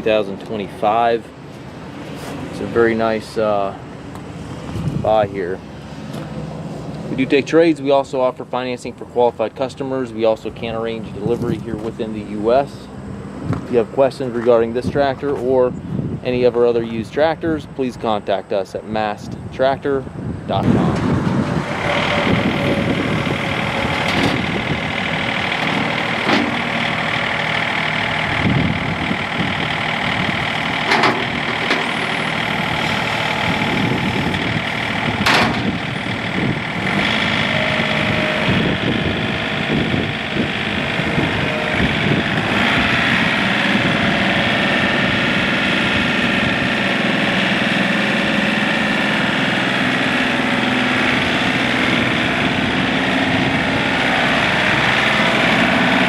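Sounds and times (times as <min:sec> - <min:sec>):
diesel tractor engine running: 0:00.0 - 0:56.0
sharp clanks: 0:23.9 - 0:27.2, 0:30.8 - 0:32.3, 0:35.2 - 0:35.8.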